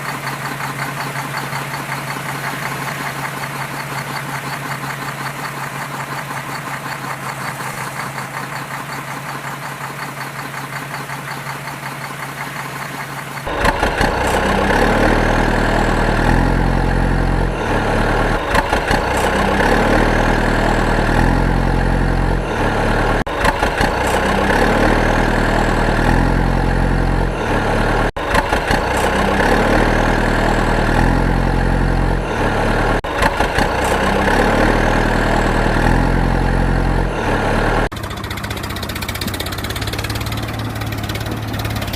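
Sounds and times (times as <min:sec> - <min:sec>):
engine running: 0:00.0 - 0:41.9.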